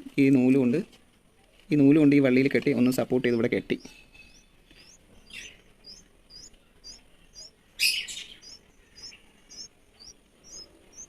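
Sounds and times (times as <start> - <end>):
small bird chirping: 2.9 - 11.0
harsh bird calls: 3.0 - 11.0.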